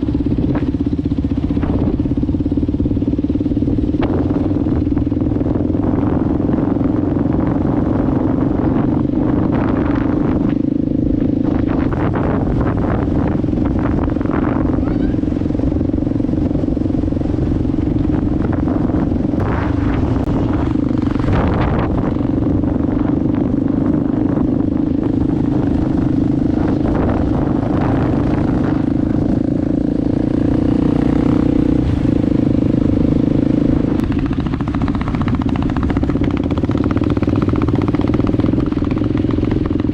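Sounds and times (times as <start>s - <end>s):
motorcycle engine droning: 0.0s - 39.9s
wind noise: 0.0s - 39.9s.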